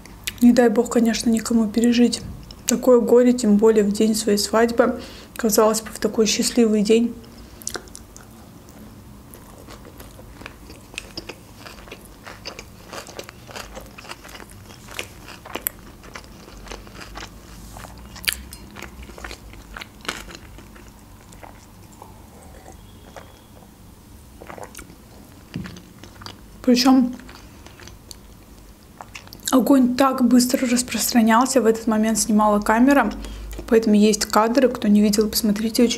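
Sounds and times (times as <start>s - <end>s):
chewing with small crunches: 7.2s - 29.6s, 33.0s - 34.4s
wet mouth clicks: 7.6s - 8.4s.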